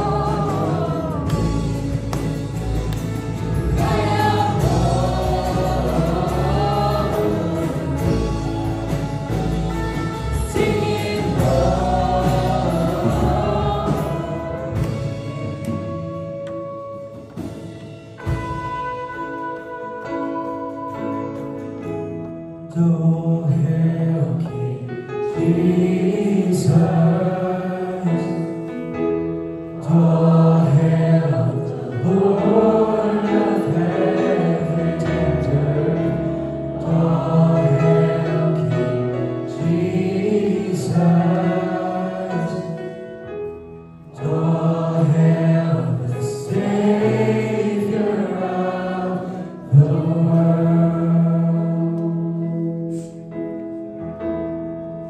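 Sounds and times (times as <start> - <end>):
group singing a worship song: 0.0 - 16.4, 22.9 - 28.8, 29.7 - 43.1, 44.0 - 53.2
instrumental accompaniment: 0.0 - 23.2.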